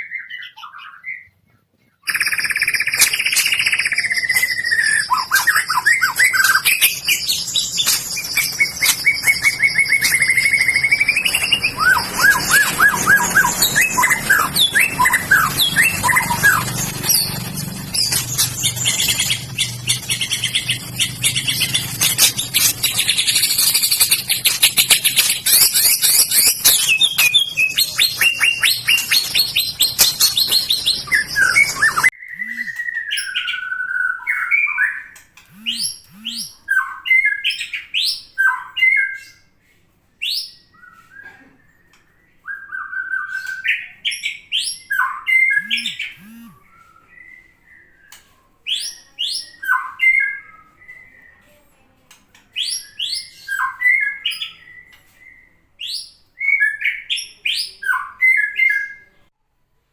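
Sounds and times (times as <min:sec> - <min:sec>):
rapid high buzzing chatter: 0:02.1 - 0:32.8, 0:35.5 - 0:36.6, 0:45.6 - 0:46.6
bird singing whistled phrases: 0:02.1 - 0:39.4, 0:40.3 - 0:51.5.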